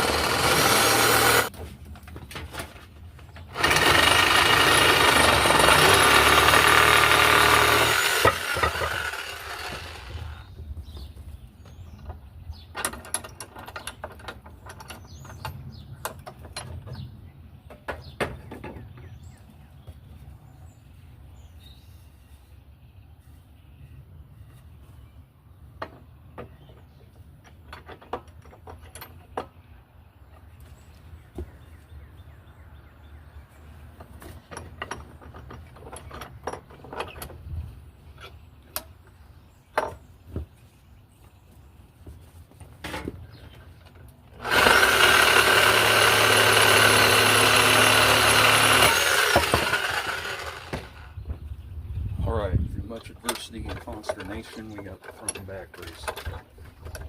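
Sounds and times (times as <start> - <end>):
hand tools clattering: 0.0 - 10.4, 53.1 - 57.0.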